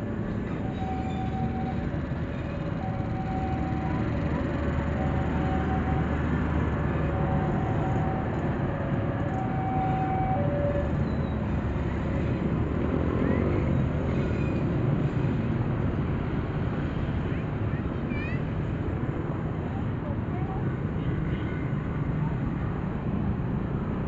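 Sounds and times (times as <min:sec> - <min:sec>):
train wheels rumbling on rails: 0:00.0 - 0:17.5
faint whining tones: 0:00.3 - 0:12.4.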